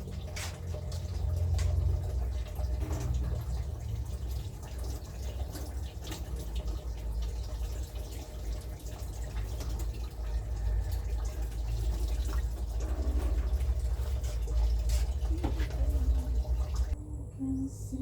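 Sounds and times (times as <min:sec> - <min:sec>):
water dripping and splashing: 0:00.0 - 0:17.0
low rumble: 0:15.2 - 0:18.0.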